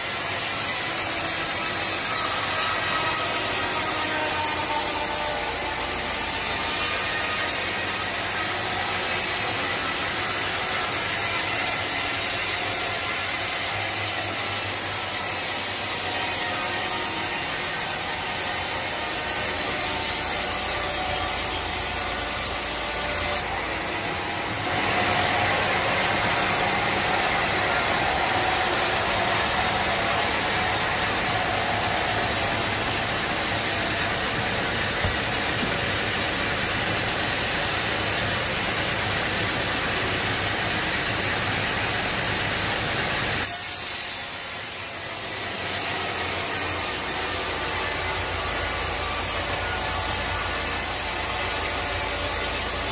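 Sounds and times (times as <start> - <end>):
steady machine noise: 0.0 - 43.5, 44.2 - 52.9
saw cutting timber: 0.0 - 52.9.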